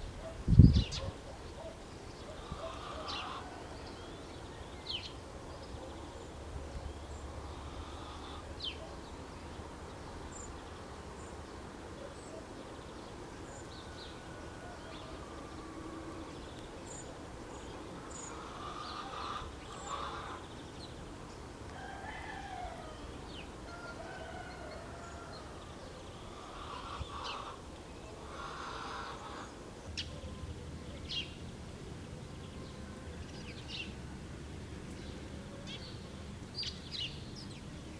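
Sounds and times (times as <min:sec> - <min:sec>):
chickens calling: 0:18.0 - 0:20.5, 0:21.8 - 0:29.6.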